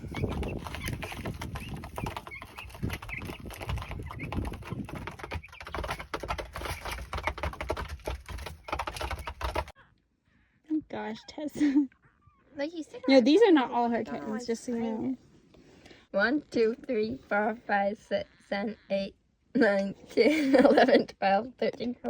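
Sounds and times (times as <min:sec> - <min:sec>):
chicks pecking at feed: 0:00.0 - 0:09.8
chicks peeping: 0:00.0 - 0:09.8.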